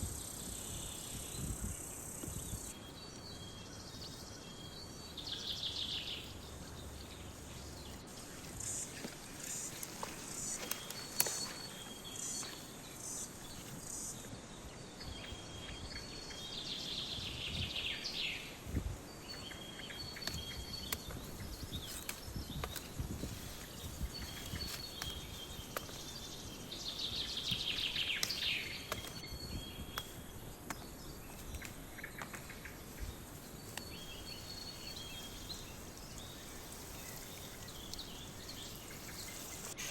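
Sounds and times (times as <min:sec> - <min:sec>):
insects chirring: 0:00.0 - 0:39.9
bird trilled song: 0:14.8 - 0:39.9.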